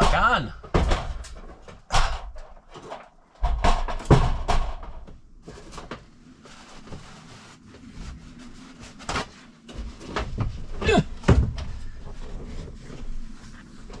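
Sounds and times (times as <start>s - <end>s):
knocks and thumps of trim: 0.0s - 5.2s, 9.1s - 11.9s
scraping and rustling: 4.8s - 14.0s.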